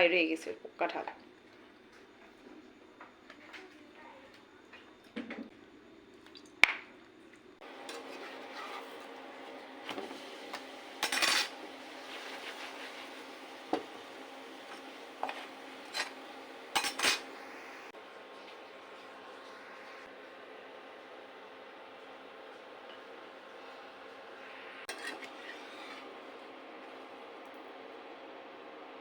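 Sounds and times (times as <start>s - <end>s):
dishes and cutlery clinking: 9.9s - 11.6s, 14.7s - 17.4s.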